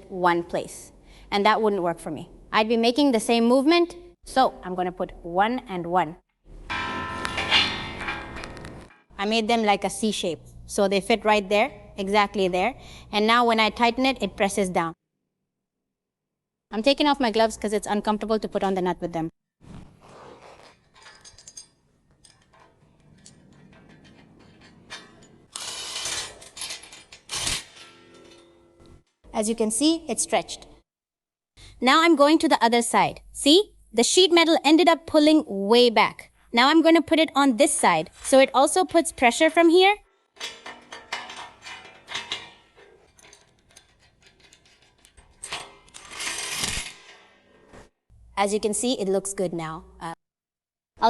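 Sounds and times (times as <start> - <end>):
noisy metal-on-metal grinding: 6.7 - 9.0, 20.8 - 29.3, 40.4 - 47.5
metal clinks and taps: 20.8 - 25.5, 40.4 - 45.8.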